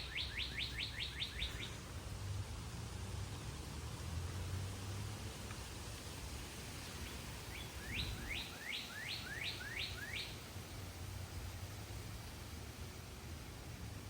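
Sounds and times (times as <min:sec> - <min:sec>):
songbird singing: 0:00.0 - 0:02.0, 0:06.6 - 0:11.2
low outdoor rumble: 0:00.0 - 0:08.4.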